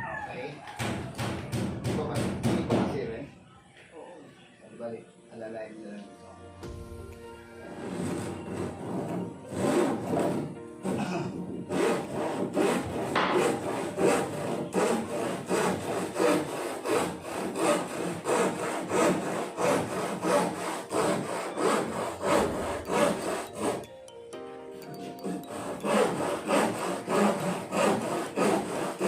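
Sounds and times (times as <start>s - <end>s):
handsaw cutting plywood: 7.7s - 23.9s, 25.1s - 29.0s.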